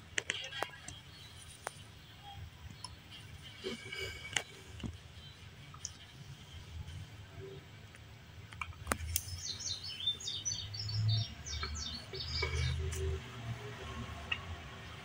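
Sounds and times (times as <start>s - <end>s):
small bird chirping: 9.0s - 13.2s.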